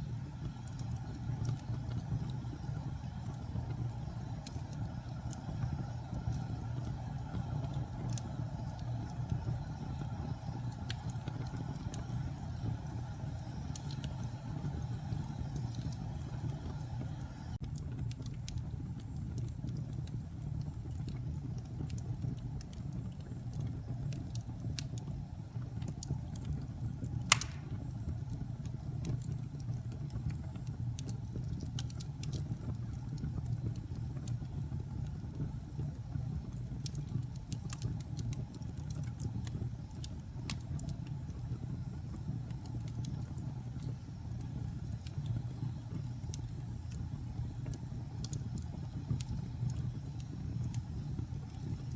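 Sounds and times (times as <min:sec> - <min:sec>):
wood fire crackling: 0:00.0 - 0:51.9
loud pop from fire: 0:27.3 - 0:28.0.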